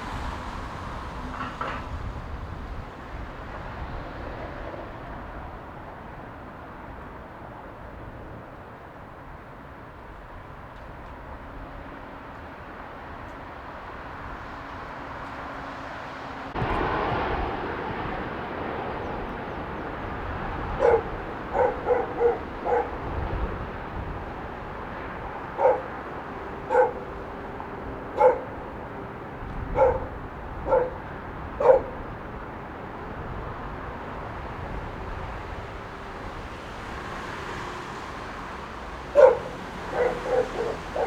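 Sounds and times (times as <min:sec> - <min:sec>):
outdoor rushing noise: 0:14.2 - 0:41.0
dog barking: 0:20.7 - 0:23.1, 0:25.4 - 0:27.2, 0:28.1 - 0:28.6, 0:29.7 - 0:32.1, 0:39.1 - 0:41.0.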